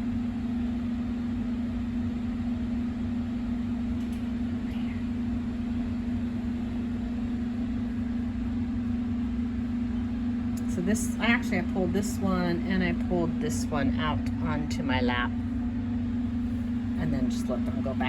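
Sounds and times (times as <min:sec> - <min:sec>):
mechanical hum with low rumble: 0:00.0 - 0:18.0.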